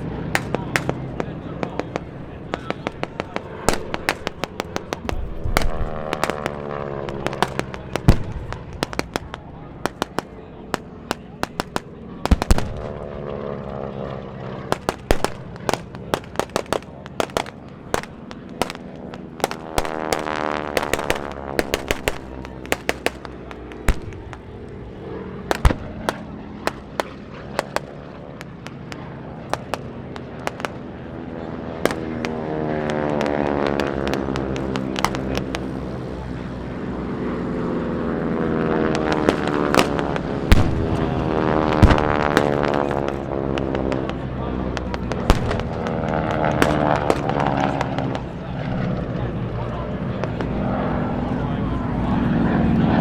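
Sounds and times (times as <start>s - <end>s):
propeller planes passing: 0.0s - 53.0s
pyrotechnic bangs: 0.2s - 13.3s, 14.6s - 36.3s, 38.9s - 51.9s.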